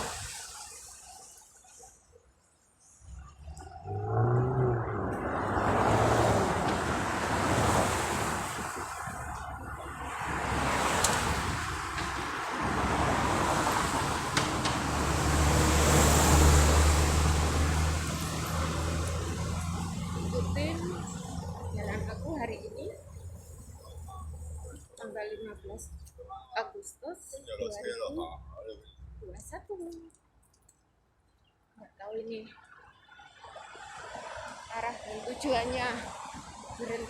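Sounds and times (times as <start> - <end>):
vehicles passing on road: 2.9 - 29.9, 32.4 - 37.0
low engine hum: 3.1 - 24.9.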